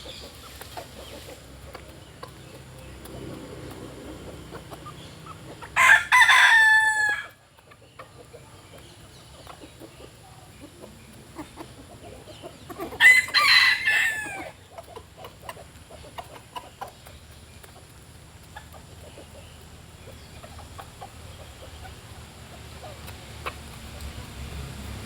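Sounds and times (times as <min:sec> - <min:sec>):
soft ticks: 0:00.0 - 0:05.9, 0:07.2 - 0:25.0
rooster crowing: 0:05.8 - 0:07.4, 0:13.0 - 0:14.5.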